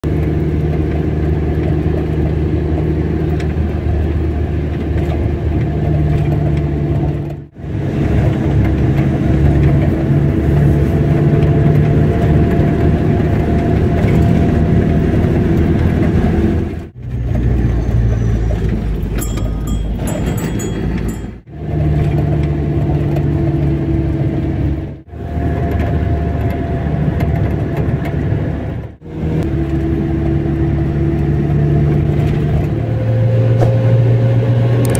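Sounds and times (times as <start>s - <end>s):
car engine and road noise: 0.0s - 34.9s.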